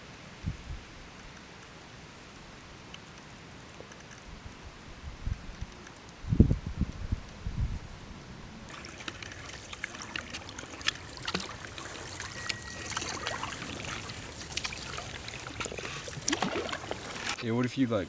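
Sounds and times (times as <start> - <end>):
water splashing around canoe: 8.7 - 17.4
high steady tone: 9.1 - 15.6.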